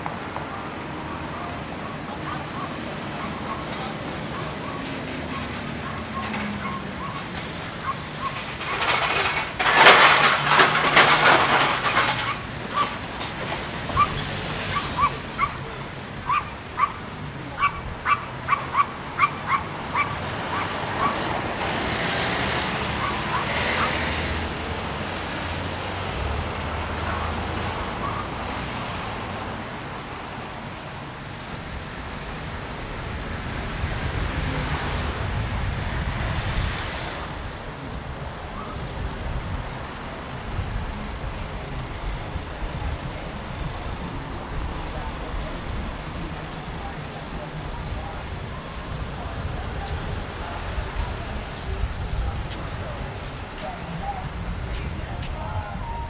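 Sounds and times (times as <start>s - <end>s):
small dog yapping: 14.0s - 15.6s, 16.2s - 17.0s, 17.6s - 21.3s, 23.0s - 24.0s.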